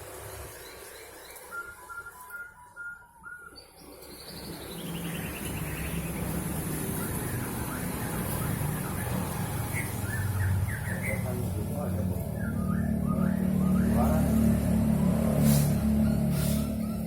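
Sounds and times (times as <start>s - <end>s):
bird calling with falling trill: 0.5s - 15.2s.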